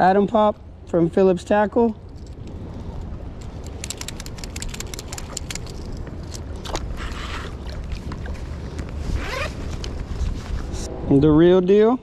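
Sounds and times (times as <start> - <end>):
wind buffeting microphone: 2.3 - 12.0
sharp clicks and ticks: 3.4 - 6.0.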